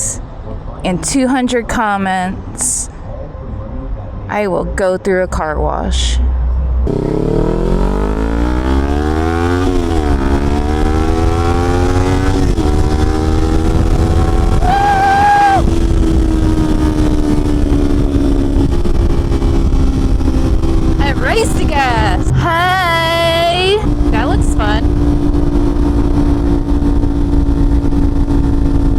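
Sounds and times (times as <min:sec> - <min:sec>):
low wind rumble: 0:02.3 - 0:28.9
motorcycle engine accelerating: 0:06.8 - 0:28.9.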